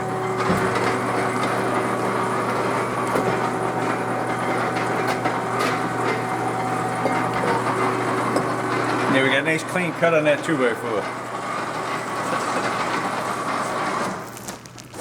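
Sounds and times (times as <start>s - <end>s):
bandsaw cutting wood: 0.0s - 14.4s
motor hum: 0.0s - 15.0s.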